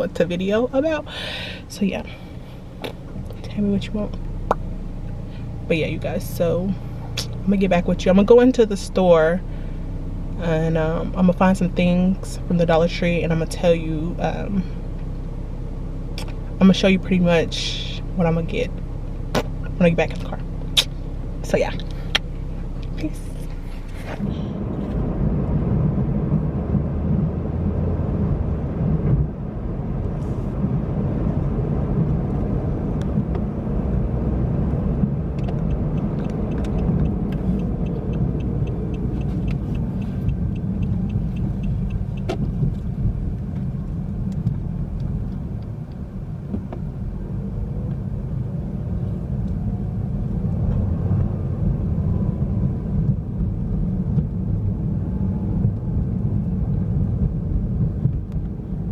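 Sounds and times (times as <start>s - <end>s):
car rumble inside cabin: 0.0s - 58.9s
quick evenly spaced ticks: 35.4s - 42.8s.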